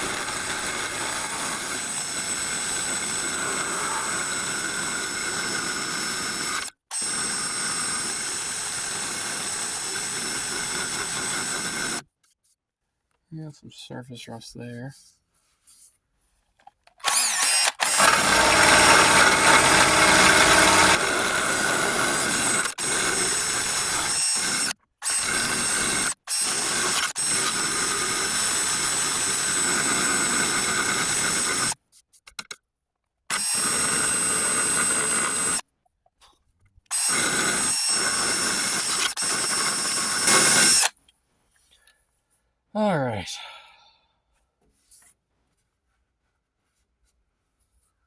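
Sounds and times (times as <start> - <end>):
electric drill grinding steel: 0.0 - 12.0, 17.0 - 31.8, 33.3 - 35.6, 36.9 - 40.9.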